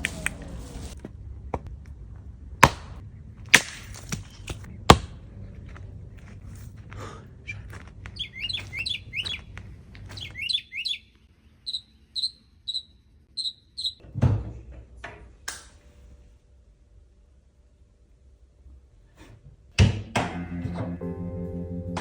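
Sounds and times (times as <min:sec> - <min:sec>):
small bird chirping: 0:08.1 - 0:09.5, 0:10.1 - 0:14.0.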